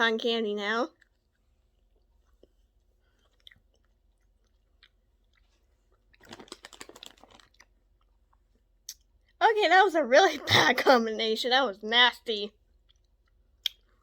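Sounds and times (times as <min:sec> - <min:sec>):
crackly chewing: 0:00.9 - 0:09.4, 0:12.6 - 0:14.0
mouth clicks: 0:13.6 - 0:13.9.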